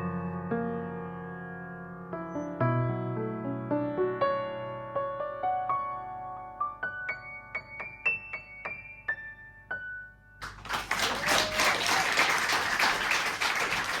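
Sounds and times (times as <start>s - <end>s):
audience applause: 10.4s - 14.0s.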